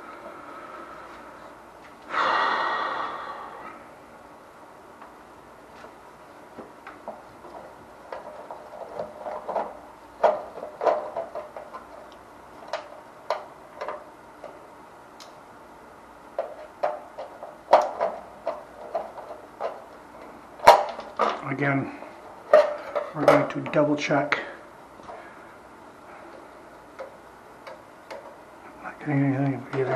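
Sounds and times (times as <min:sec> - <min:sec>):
steady hum: 0:00.0 - 0:29.9
tools clicking and tapping: 0:26.3 - 0:28.4.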